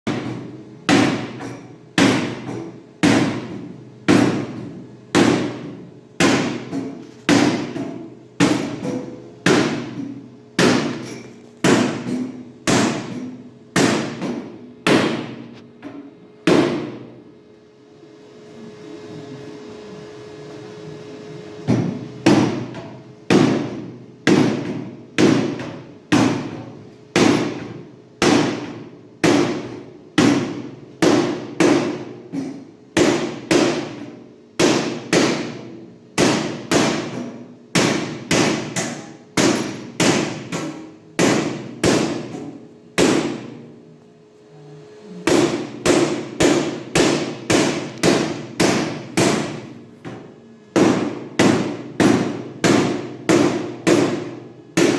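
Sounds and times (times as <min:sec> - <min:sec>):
hammer striking metal: 0:00.1 - 0:17.1, 0:21.7 - 0:43.6, 0:45.2 - 0:50.2, 0:50.8 - 0:54.9.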